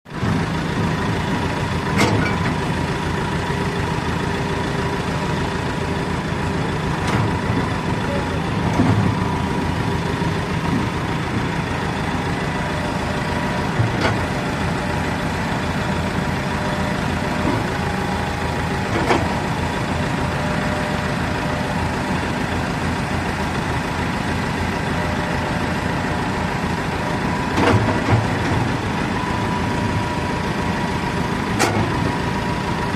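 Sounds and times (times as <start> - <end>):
excavator diesel engine running: 0.1 - 32.9.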